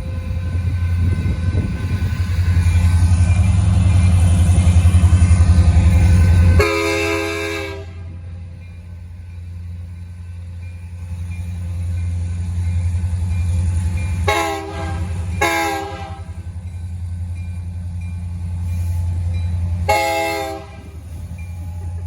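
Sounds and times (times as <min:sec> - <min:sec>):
locomotive rumbling: 0:00.0 - 0:22.0
locomotive air horn blast: 0:05.9 - 0:08.1, 0:14.3 - 0:16.4, 0:19.8 - 0:21.1.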